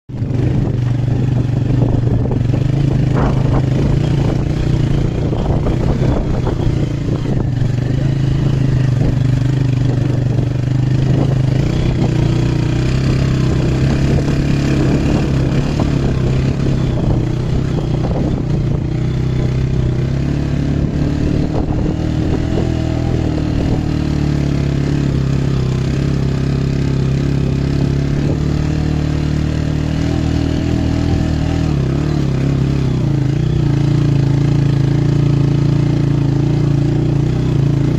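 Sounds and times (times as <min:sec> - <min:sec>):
engine running: 0:00.1 - 0:37.9.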